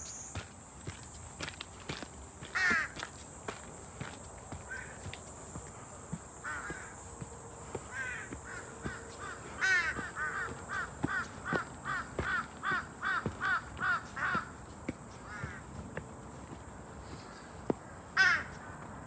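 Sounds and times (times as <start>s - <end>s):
footsteps on dirt trail: 0.0s - 19.0s
bird calling: 4.5s - 15.8s.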